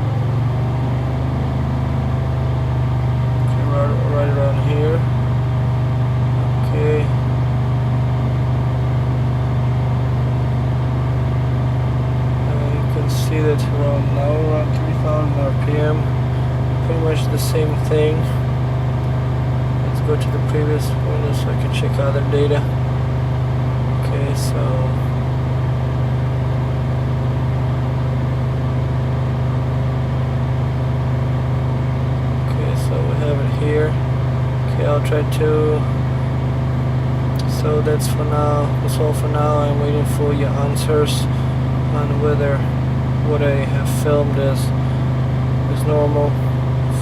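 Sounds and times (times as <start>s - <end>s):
car engine droning: 0.0s - 47.0s.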